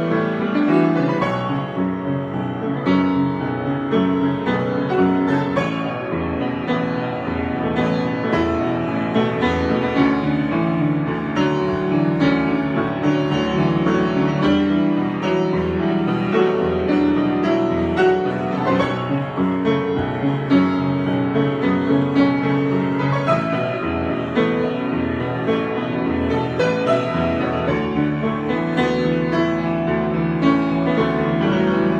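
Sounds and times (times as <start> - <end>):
piano improvisation: 0.0 - 31.9.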